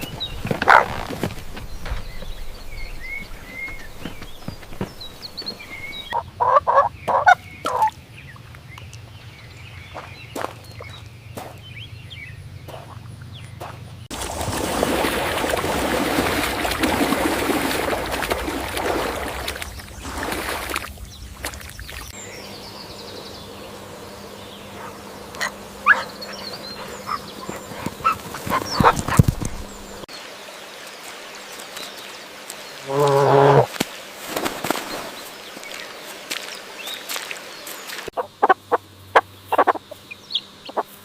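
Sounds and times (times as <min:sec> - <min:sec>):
farm animal calls: 0:00.0 - 0:01.1, 0:02.9 - 0:08.0, 0:24.3 - 0:29.9, 0:32.8 - 0:33.7, 0:38.2 - 0:41.0.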